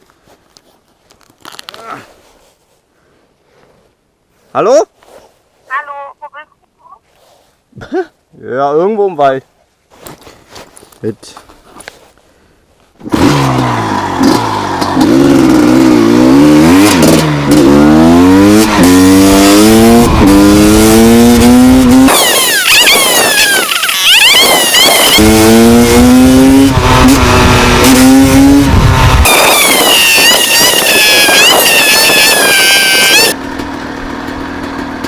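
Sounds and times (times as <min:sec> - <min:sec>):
motorcycle engine accelerating: 0:13.0 - 0:35.0.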